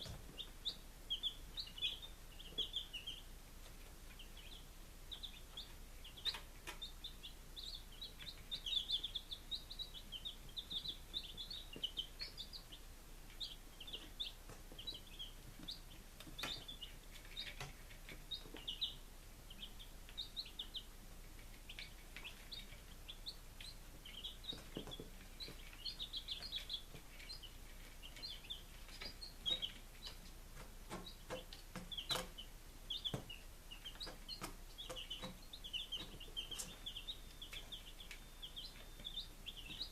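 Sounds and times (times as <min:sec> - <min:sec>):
baby chicks peeping: 0:00.0 - 0:39.9
sharp clicks and taps: 0:28.9 - 0:32.4.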